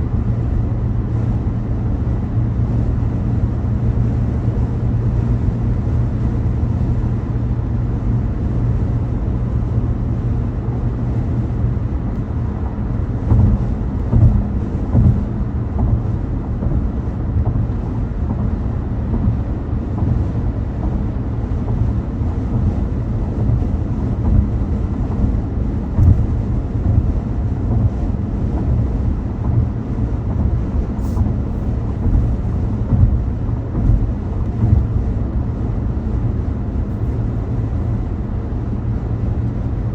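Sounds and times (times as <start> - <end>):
car road and engine rumble: 0.0 - 39.9
car bumps over road surface: 13.2 - 21.1, 26.0 - 28.0, 28.6 - 35.1.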